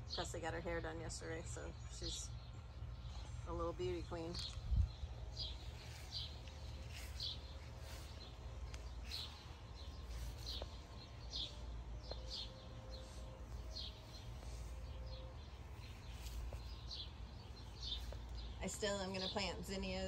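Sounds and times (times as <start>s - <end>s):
low outdoor background rumble: 0.0s - 20.0s
small birds chirping: 0.0s - 20.0s.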